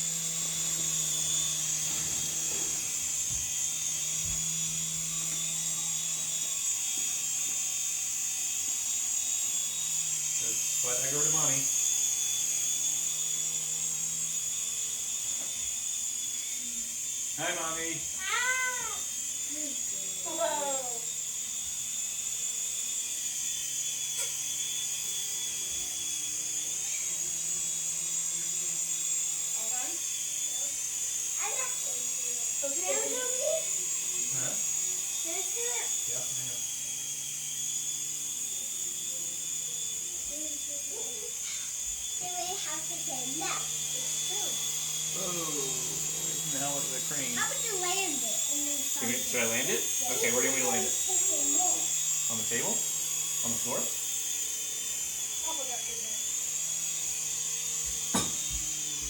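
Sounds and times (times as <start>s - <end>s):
toy helicopter whining: 0.0s - 59.0s.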